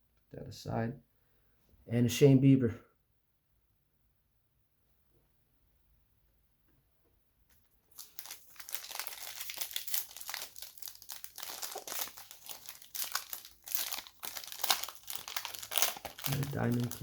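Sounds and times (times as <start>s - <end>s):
plastic wrapper crinkling: 7.5s - 17.0s.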